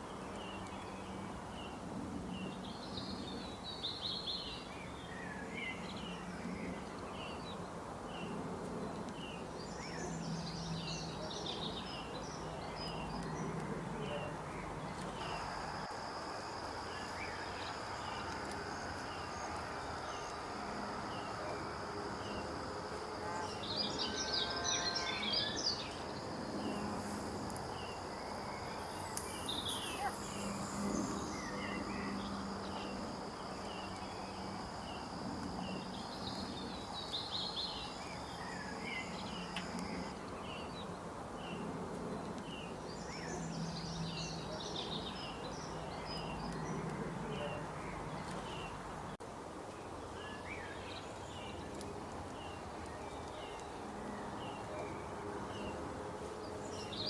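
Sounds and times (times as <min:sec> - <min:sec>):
flurries of bird calls: 0:15.1 - 0:40.2
insects high-pitched calling: 0:15.2 - 0:40.2.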